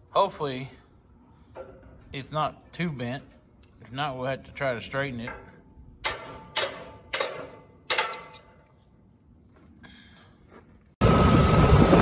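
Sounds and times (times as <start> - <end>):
tools clanking on steel: 5.2 - 8.9
wind noise: 11.0 - 12.0.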